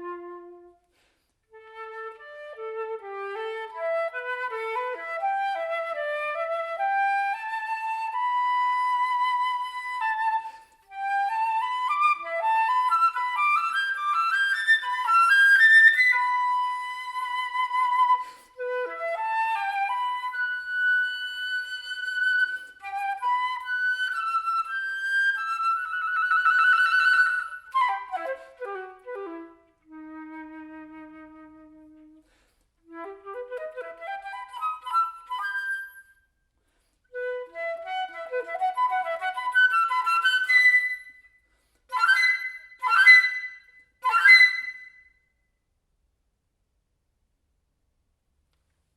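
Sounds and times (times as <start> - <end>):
solo flute playing runs: 1.5 - 36.2, 41.9 - 45.1.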